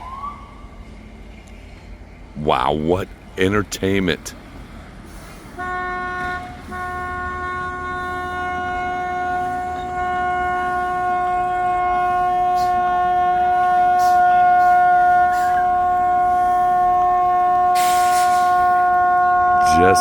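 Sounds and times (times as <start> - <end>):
vehicle horn blaring: 5.6 - 20.0.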